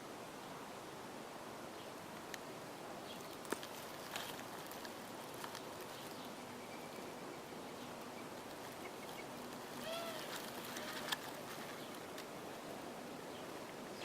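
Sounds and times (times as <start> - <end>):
steady outdoor hiss: 0.0 - 14.0.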